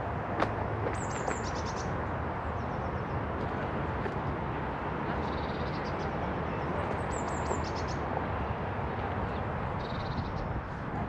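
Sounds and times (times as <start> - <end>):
songbirds singing: 0.9 - 3.3, 5.2 - 8.1, 9.2 - 10.6.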